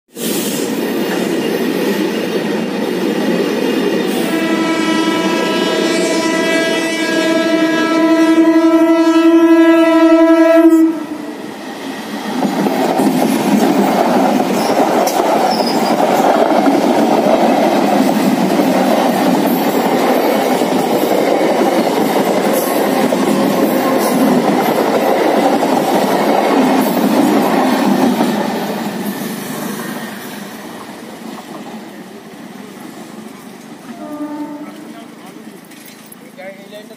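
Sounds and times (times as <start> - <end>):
train horn blast: 4.2 - 11.4, 33.9 - 35.1
train wheel clatter: 11.7 - 31.9, 34.7 - 36.9.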